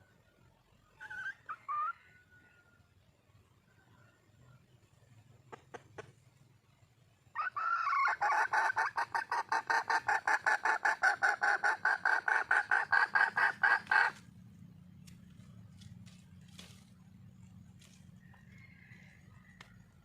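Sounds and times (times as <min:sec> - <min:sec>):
hen clucking: 0:07.4 - 0:15.5.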